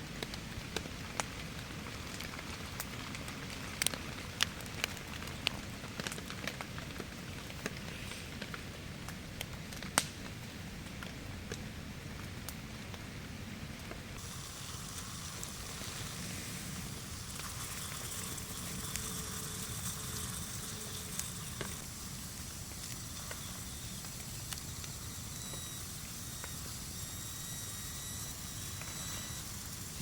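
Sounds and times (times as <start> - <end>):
campfire crackling: 0.0 - 30.0
rain falling: 0.2 - 7.5, 14.2 - 27.6.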